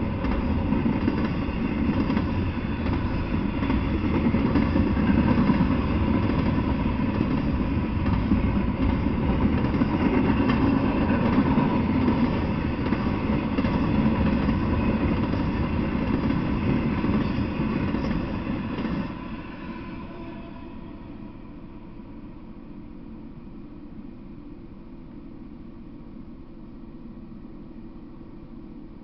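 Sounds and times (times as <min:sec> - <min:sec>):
freight train wheels rumbling on rails: 0:00.0 - 0:22.2.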